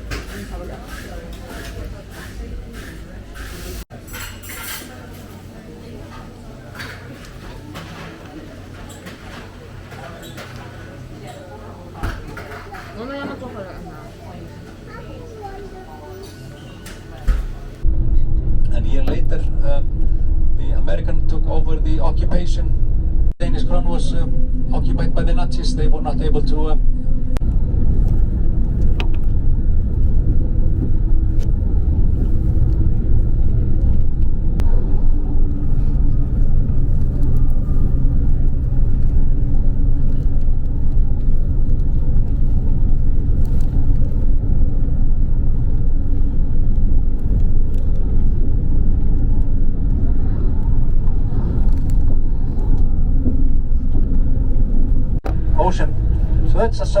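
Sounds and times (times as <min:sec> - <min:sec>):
bus engine drone: 0:16.8 - 0:57.0
road rumble: 0:17.0 - 0:57.0.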